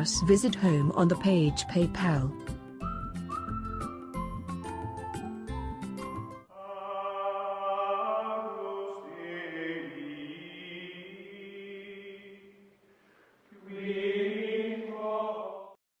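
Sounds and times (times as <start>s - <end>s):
chant-like vocal music: 6.5s - 12.7s, 13.5s - 15.8s.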